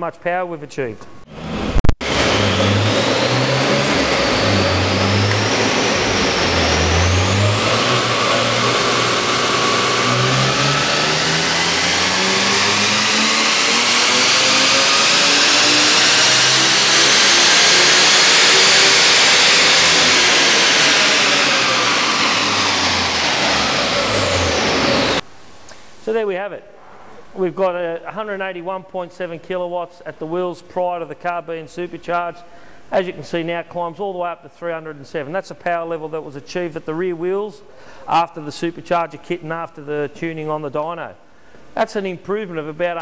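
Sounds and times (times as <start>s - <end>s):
car engine revving at full throttle: 1.3s - 25.2s
supercharger whine: 1.3s - 25.2s.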